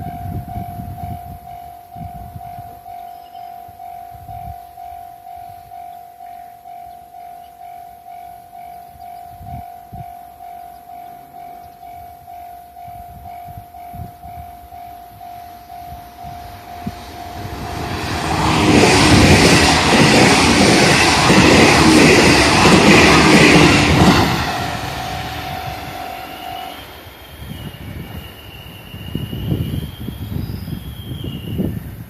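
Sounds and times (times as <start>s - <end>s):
train rushing past: 8.1s - 32.0s
train wheels clattering: 16.3s - 27.8s.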